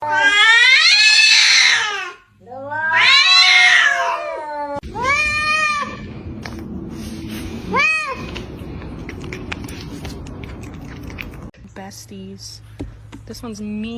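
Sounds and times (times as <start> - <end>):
cat meowing: 0.0 - 6.1, 7.6 - 9.4.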